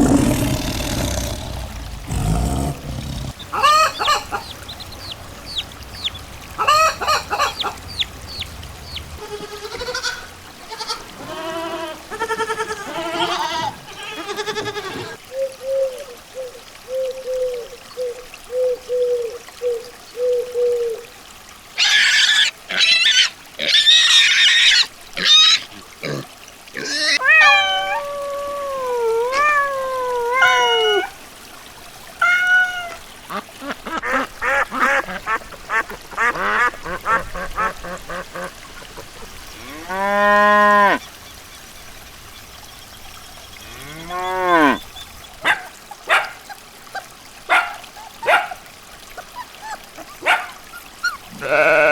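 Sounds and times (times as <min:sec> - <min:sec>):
animal calls: 0:00.0 - 0:15.2.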